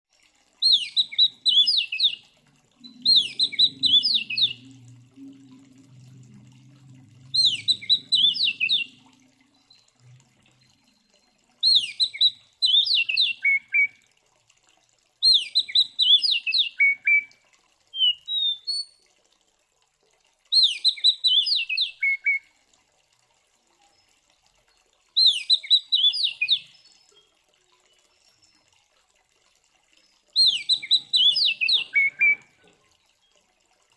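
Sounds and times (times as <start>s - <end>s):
bird singing whistled notes: 0.6s - 2.2s, 2.8s - 4.9s, 7.3s - 9.0s, 11.6s - 13.9s, 15.2s - 17.3s, 18.0s - 18.9s, 20.5s - 22.4s, 25.2s - 27.3s, 30.3s - 32.5s.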